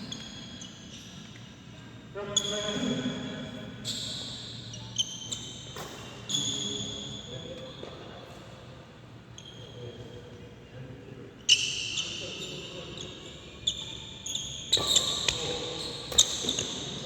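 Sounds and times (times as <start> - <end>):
shoe squeaks on court floor: 0.0 - 1.7, 3.8 - 8.3, 9.3 - 10.2, 11.5 - 17.0.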